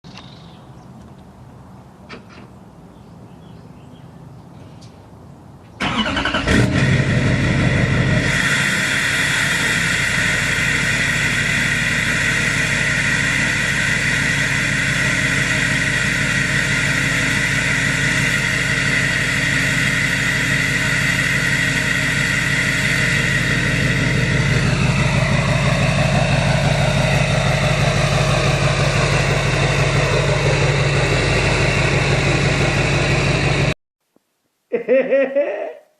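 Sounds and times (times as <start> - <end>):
diesel engine idling: 5.8 - 33.8
high whine: 6.6 - 33.8.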